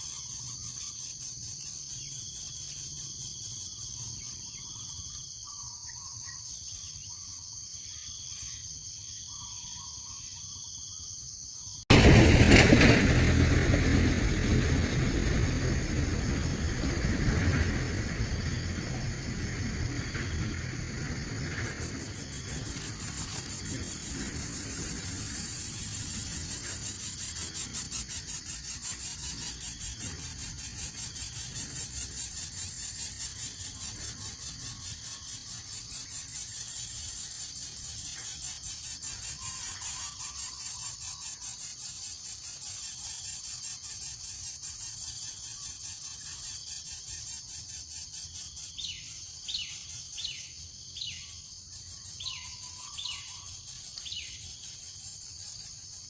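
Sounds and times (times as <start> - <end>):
insect chorus pulsing: 0.0 - 56.0.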